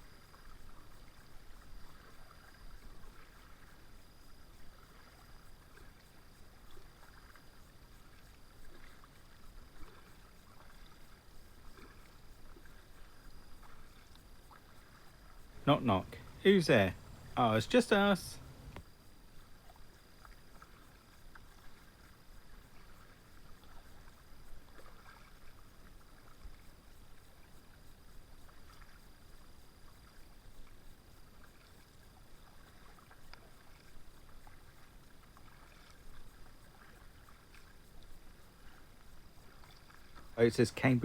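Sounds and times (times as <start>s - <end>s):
paddle splashing in water: 6.7s - 18.8s, 19.6s - 26.6s, 31.4s - 40.8s
thin high tone: 15.6s - 18.8s.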